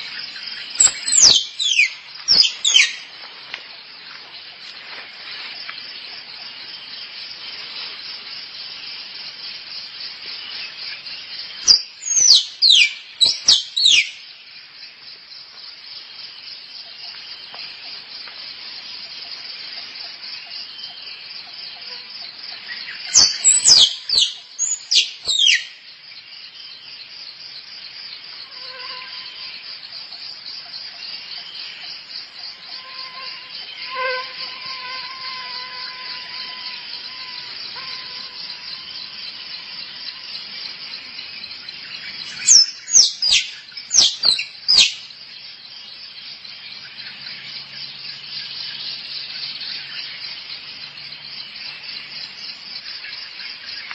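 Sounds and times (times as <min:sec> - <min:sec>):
insect chorus: 0:00.0 - 0:53.9
squirrel chirping: 0:00.8 - 0:03.0, 0:23.2 - 0:25.6.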